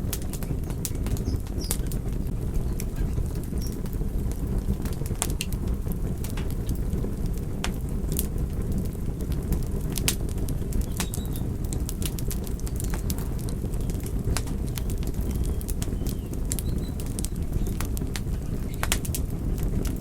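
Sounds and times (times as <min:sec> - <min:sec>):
fire crackling and popping: 0:00.0 - 0:20.0
low rumble of flames: 0:00.0 - 0:20.0.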